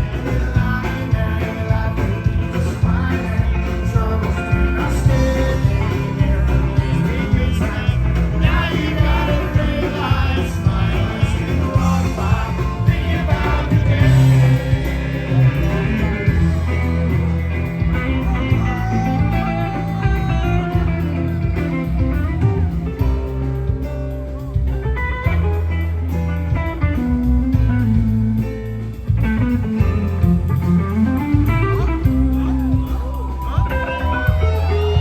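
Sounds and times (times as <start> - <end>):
electric guitar lead: 0.0 - 35.0
rock band playing: 0.0 - 35.0.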